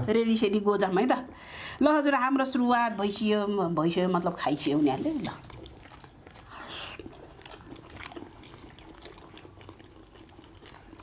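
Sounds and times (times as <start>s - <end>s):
people chewing dumplings: 4.6s - 11.0s.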